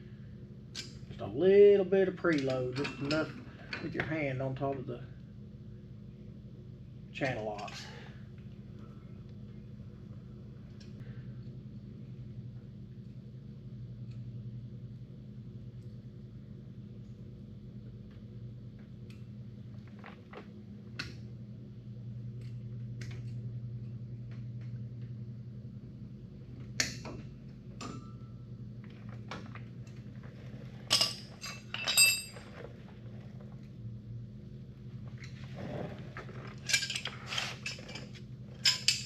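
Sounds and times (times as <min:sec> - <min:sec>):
steady low hum: 0:00.0 - 0:39.0
metal tools clinking: 0:30.9 - 0:32.5, 0:36.4 - 0:39.0.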